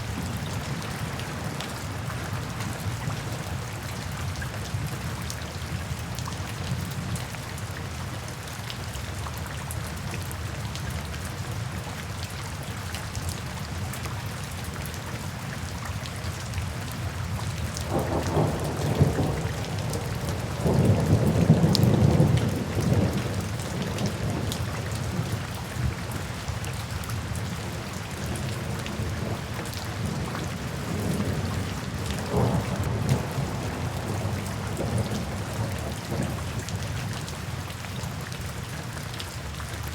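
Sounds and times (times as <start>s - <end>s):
steady rain: 0.0s - 39.9s
thunder rumbling: 17.9s - 25.3s, 30.0s - 36.7s.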